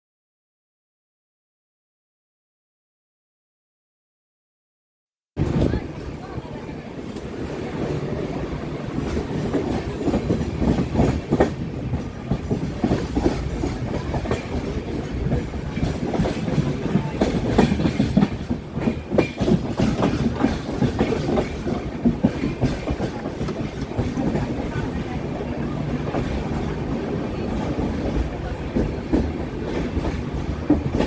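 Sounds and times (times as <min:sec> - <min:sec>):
train coaches rumbling past: 0:05.4 - 0:31.0
wheels clicking over rail joints: 0:08.9 - 0:31.0.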